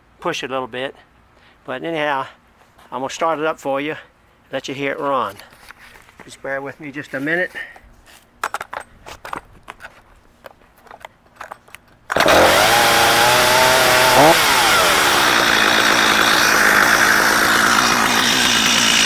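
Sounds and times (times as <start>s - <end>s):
chainsaw starting and idling: 12.1s - 19.0s.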